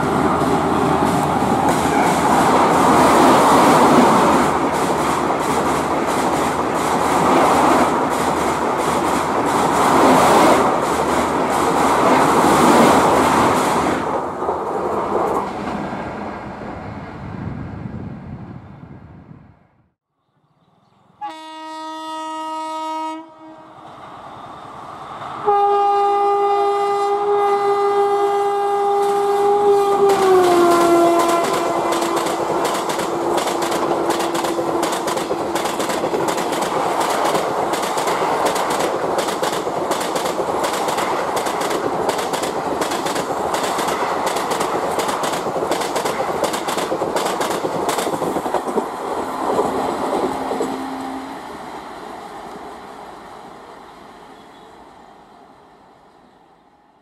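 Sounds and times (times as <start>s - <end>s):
wheels clacking over rail joints: 0.0s - 16.1s, 30.0s - 51.8s
passenger train passing: 0.0s - 19.9s, 20.6s - 57.0s
locomotive horn: 21.2s - 23.8s, 25.4s - 32.2s, 49.4s - 51.6s.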